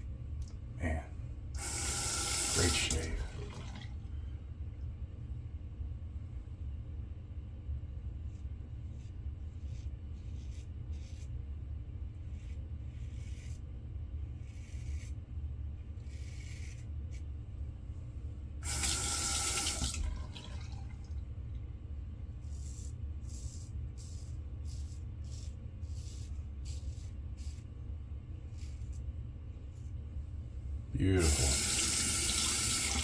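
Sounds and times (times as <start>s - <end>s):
steady low hum: 0.0s - 33.0s
sink tap running: 1.6s - 3.8s, 18.6s - 20.9s, 31.2s - 33.0s
water splashes: 1.8s - 4.0s, 18.7s - 21.2s.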